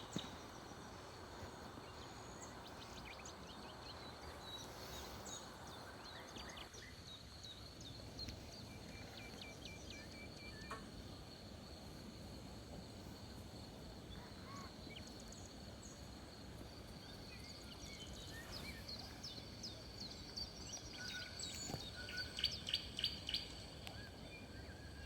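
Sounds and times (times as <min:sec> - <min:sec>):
birds chirping: 0:00.0 - 0:11.0
steady background hiss: 0:00.0 - 0:25.0.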